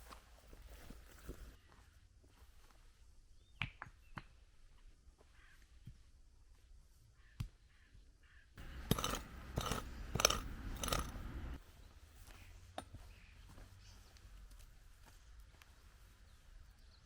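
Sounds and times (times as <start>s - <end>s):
sharp metallic clinks: 8.6s - 11.4s.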